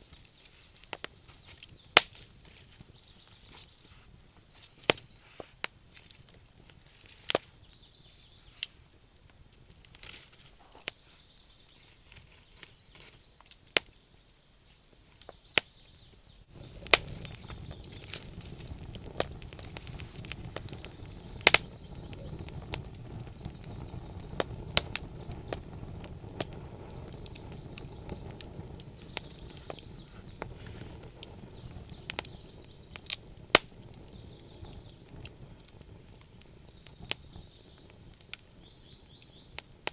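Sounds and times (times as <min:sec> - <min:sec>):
wood fire crackling in a stove: 0:00.0 - 0:39.9
steady low rumble: 0:16.5 - 0:37.0.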